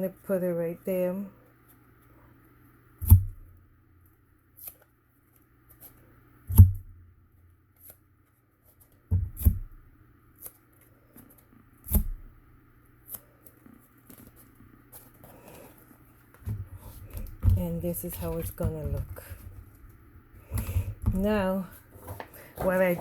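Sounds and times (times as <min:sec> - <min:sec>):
paper rustling: 0:13.4 - 0:17.4, 0:21.5 - 0:23.0.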